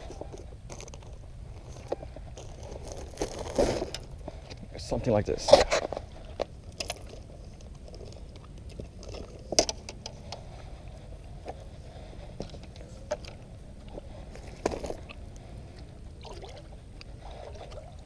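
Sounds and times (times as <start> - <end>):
steady low rumble: 0.0 - 18.0
gear knocks and clatters: 5.4 - 10.5.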